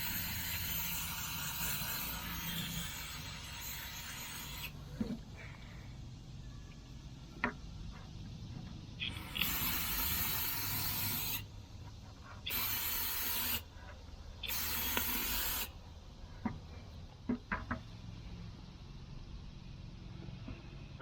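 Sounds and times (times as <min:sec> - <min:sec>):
solvent spray hissing: 0:09.0 - 0:11.5, 0:12.4 - 0:13.7, 0:14.4 - 0:15.8.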